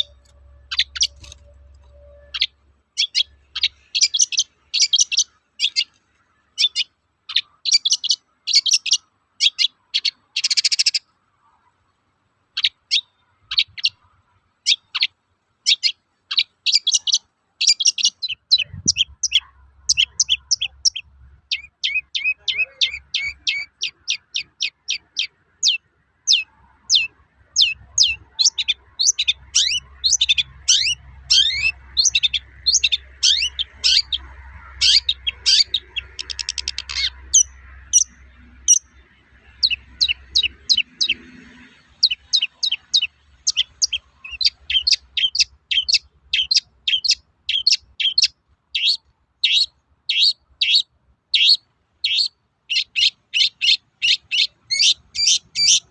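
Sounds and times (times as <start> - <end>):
bird rattling trill: 0.0 - 3.2
bird singing high sharp notes: 0.0 - 5.9, 15.7 - 55.9.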